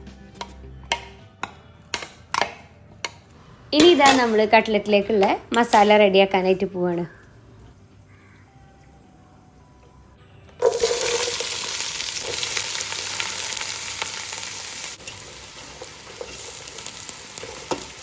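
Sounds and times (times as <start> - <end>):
onions sizzling in hot oil: 10.6 - 18.0.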